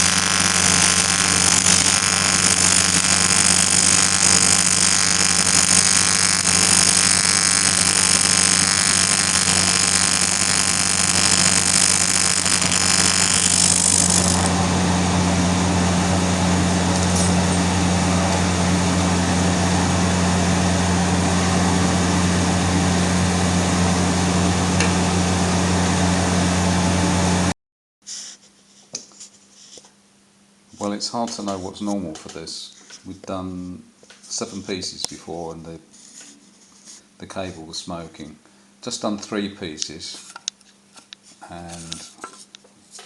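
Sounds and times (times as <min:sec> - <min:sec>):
welding arc hissing and crackling: 0:00.0 - 0:14.6
electrical hum: 0:00.0 - 0:26.6.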